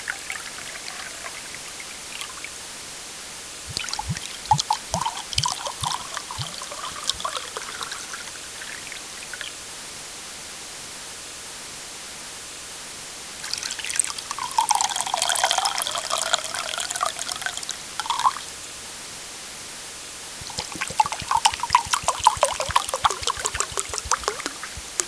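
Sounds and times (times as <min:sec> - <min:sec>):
liquid poured into a glass: 0:00.0 - 0:02.5, 0:03.7 - 0:09.6, 0:13.4 - 0:18.5, 0:20.4 - 0:25.0.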